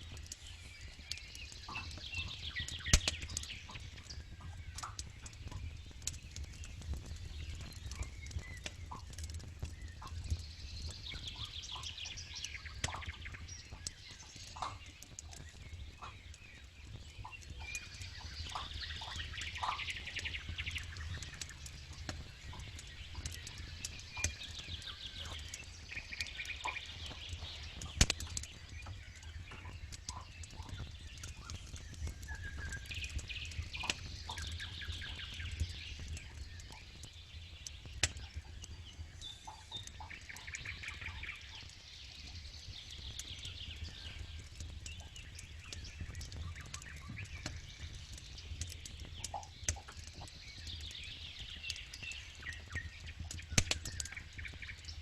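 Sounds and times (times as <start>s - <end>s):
campfire crackling: 0.0s - 55.0s
birds chirping: 0.2s - 55.0s.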